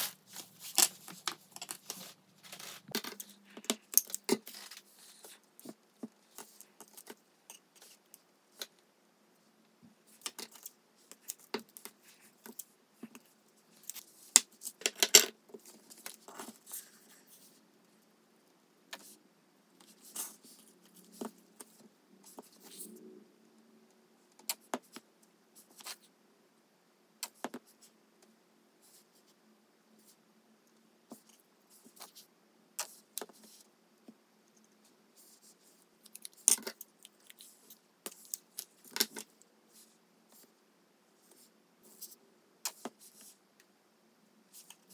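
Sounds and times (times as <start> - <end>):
hands handling craft items: 0.0 - 8.8.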